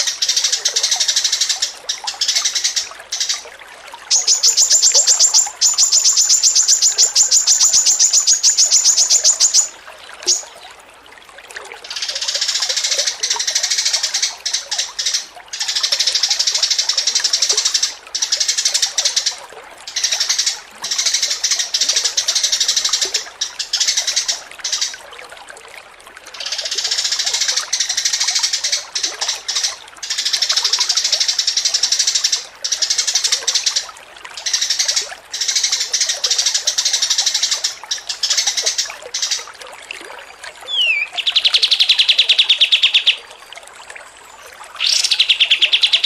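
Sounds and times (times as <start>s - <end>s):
small songbird singing: 4.1s - 10.5s, 40.7s - 43.3s, 44.8s - 46.0s.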